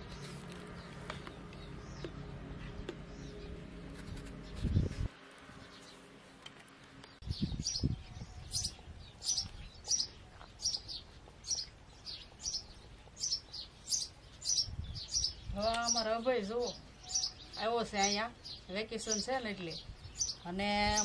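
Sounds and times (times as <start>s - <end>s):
small bird chirping: 7.1s - 21.0s.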